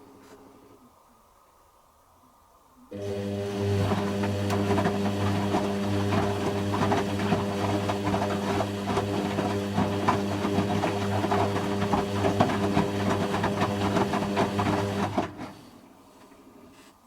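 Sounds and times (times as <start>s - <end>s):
washing machine spinning: 2.9s - 15.6s.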